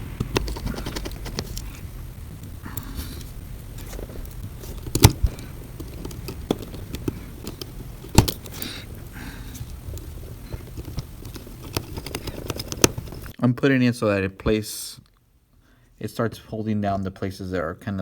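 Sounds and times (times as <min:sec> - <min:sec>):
screwdriver clicks and taps: 0:04.8 - 0:08.7.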